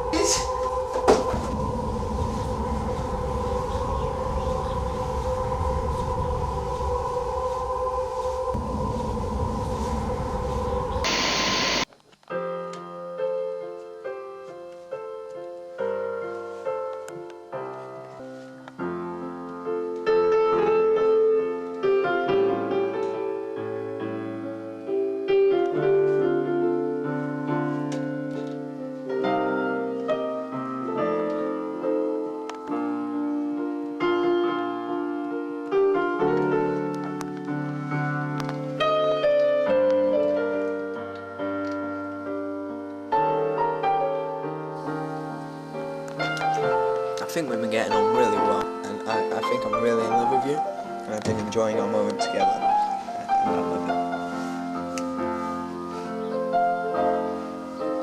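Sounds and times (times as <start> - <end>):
loud rushing noise: 1.3 - 11.9
solo piano music: 12.6 - 58.0.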